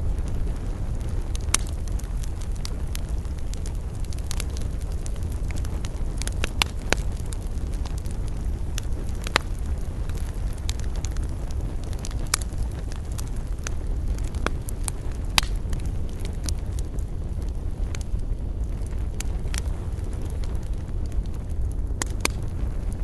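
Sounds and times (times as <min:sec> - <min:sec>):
low fire rumble: 0:00.0 - 0:23.0
campfire pops and snaps: 0:00.1 - 0:23.0.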